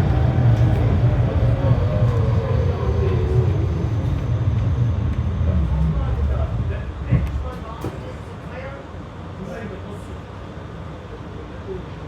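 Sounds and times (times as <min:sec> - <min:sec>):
tram wheels rumbling: 0:00.0 - 0:08.8.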